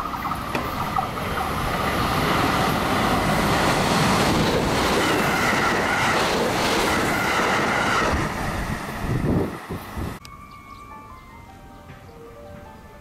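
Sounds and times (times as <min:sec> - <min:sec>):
wheels clattering over rails: 0:00.0 - 0:08.3
electric train passing: 0:00.0 - 0:13.0.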